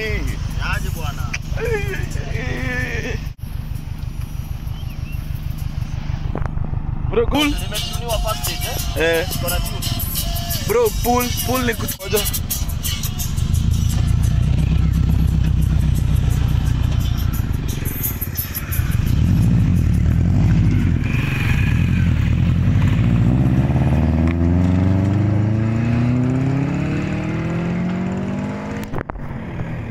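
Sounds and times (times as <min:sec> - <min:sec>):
car engine through exhaust: 0:00.0 - 0:07.9, 0:08.5 - 0:29.9
car accelerating away: 0:13.5 - 0:29.9.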